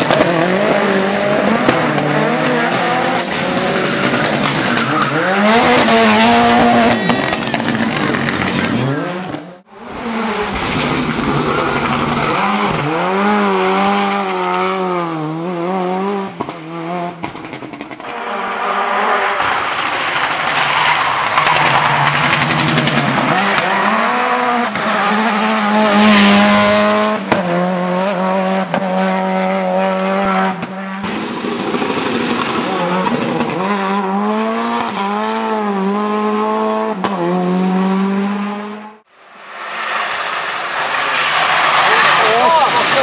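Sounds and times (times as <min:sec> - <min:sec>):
rally car engine revving hard: 0:00.0 - 0:39.0, 0:39.6 - 0:43.0
tyre squeals: 0:03.1 - 0:07.8, 0:10.4 - 0:13.0, 0:19.2 - 0:22.6, 0:30.5 - 0:31.8.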